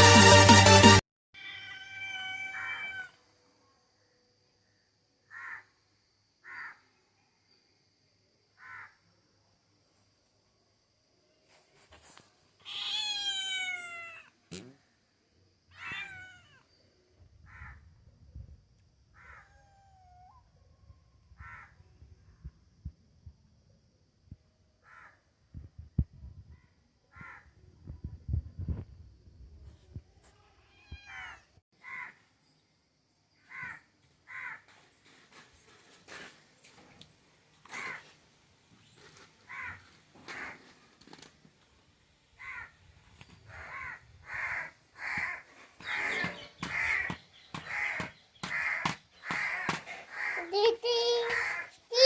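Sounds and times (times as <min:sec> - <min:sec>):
cat meowing: 0:01.4 - 0:03.2, 0:12.6 - 0:14.3, 0:15.7 - 0:16.7, 0:19.2 - 0:20.4, 0:30.5 - 0:31.5.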